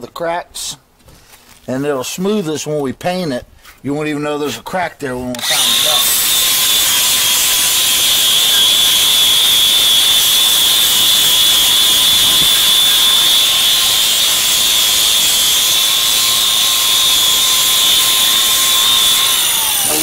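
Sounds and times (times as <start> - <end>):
angle grinder sanding: 5.4 - 20.0.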